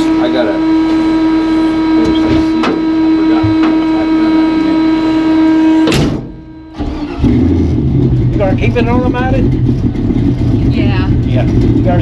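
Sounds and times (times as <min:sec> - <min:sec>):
loud electrical buzz: 0:00.0 - 0:08.1.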